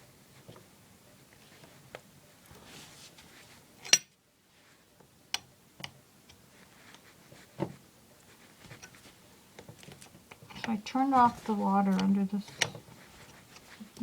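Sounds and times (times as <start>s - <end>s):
tools knocking and clicking: 11.9s - 12.8s.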